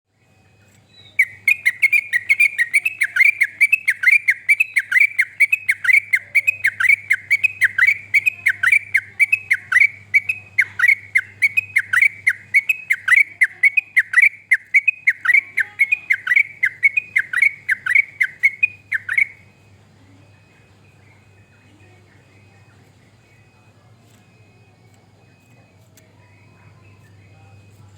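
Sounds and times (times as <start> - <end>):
bulbul calling rapid notes: 1.0 - 19.5.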